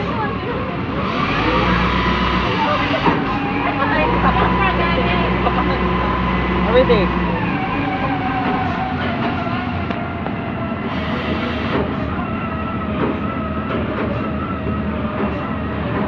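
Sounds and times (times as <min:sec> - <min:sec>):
diesel machinery engine: 0:00.0 - 0:16.0
hydraulic whine: 0:00.9 - 0:16.0.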